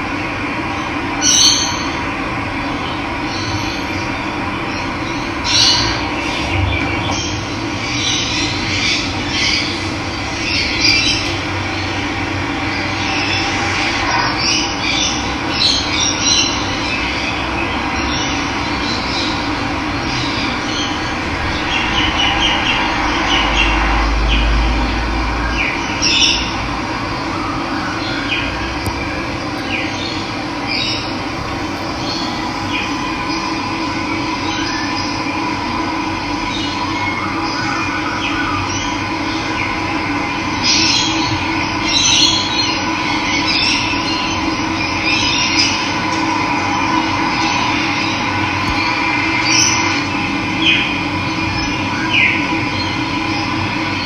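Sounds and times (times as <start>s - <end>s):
birds chirping and calling: 29.6s - 33.8s.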